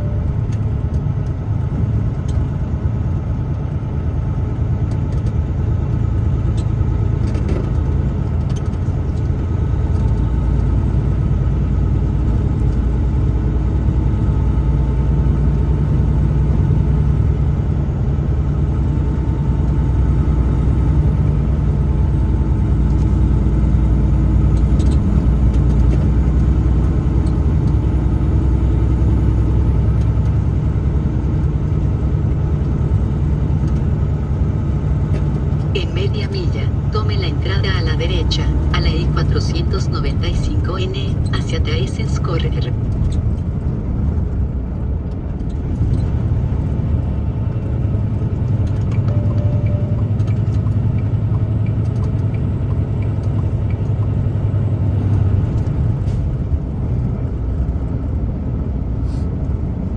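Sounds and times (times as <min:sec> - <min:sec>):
truck engine and road rumble: 0:00.0 - 0:59.9.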